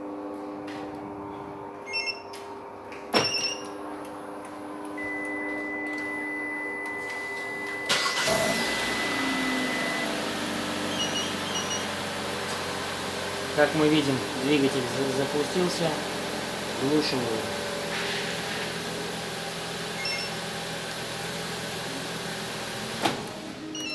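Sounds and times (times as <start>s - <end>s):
short electronic alarm beeps: 1.9s - 2.3s, 20.0s - 20.4s
car engine cranking and running: 7.9s - 23.8s.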